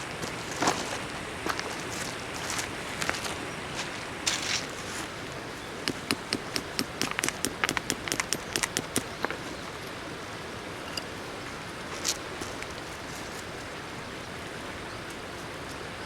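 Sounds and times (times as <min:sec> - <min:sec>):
sharp clicks and knocks: 0:05.9 - 0:09.6.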